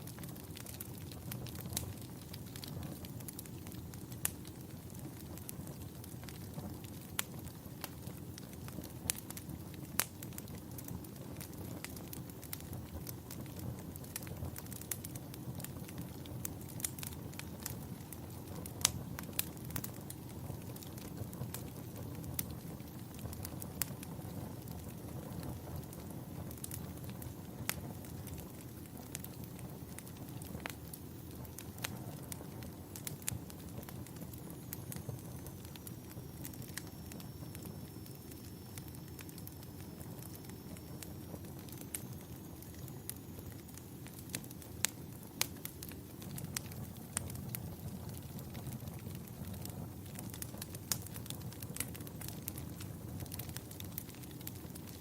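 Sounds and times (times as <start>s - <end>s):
burning wood crackling and popping: 0.0s - 55.0s
campfire low rumble: 0.0s - 55.0s
flames rushing: 0.0s - 55.0s
faint high whistle: 34.9s - 43.4s.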